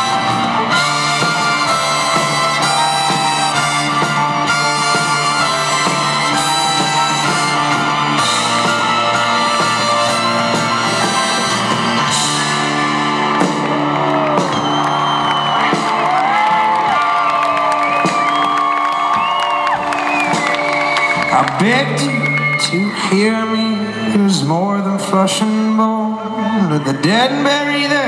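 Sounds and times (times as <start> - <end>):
crowd whooping and whistling: 0.0 - 24.7, 25.8 - 28.0
live folk-rock band playing: 0.0 - 28.0.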